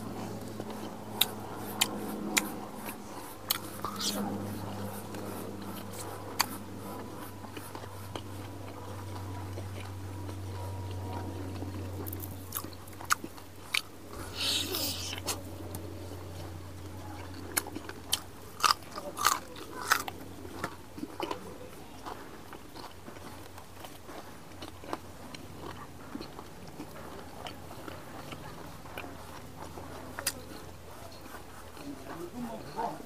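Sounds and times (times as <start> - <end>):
chewing and biting meat: 0.0 - 33.0.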